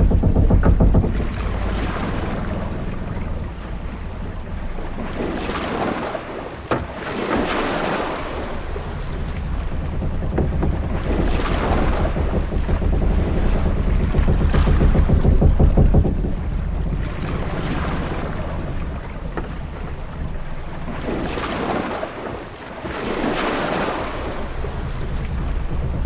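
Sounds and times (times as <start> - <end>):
sharp knock: 0.0 - 5.6, 8.4 - 21.9
low rumble of wind and sea: 0.0 - 26.0
waves washing: 0.0 - 26.0.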